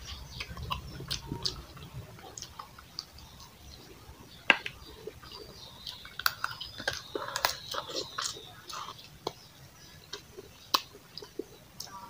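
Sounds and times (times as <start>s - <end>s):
wet chewing: 0.0s - 12.0s
mouth smacks and clicks: 10.1s - 12.0s.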